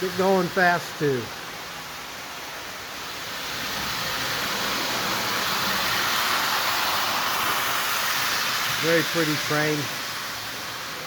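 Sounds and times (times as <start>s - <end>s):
toy train whirring on track: 2.9s - 11.0s.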